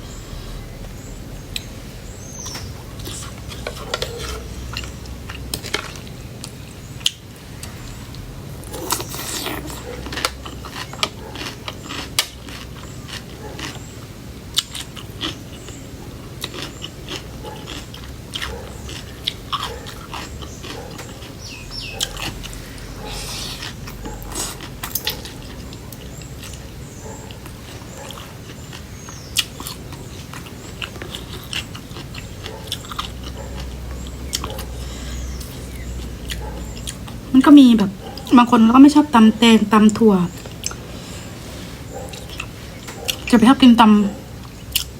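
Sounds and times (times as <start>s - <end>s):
low steady hum: 0.0s - 44.9s
person chewing and crunching: 2.5s - 37.3s, 39.8s - 43.3s, 44.3s - 44.9s
wet mouth clicks: 8.6s - 10.4s.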